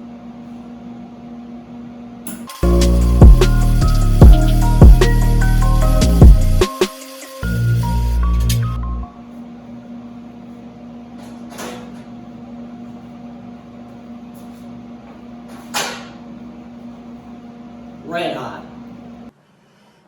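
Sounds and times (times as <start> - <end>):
steady low hum: 0.0 - 6.7
short hissing bursts: 2.5 - 8.6
background music: 2.5 - 9.1.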